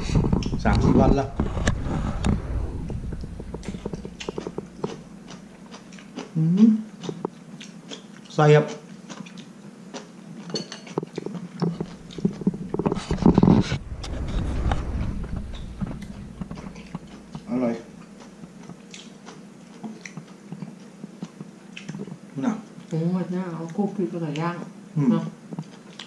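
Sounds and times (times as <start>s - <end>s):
person chewing food: 3.6s - 12.9s, 18.0s - 22.2s, 25.5s - 26.0s.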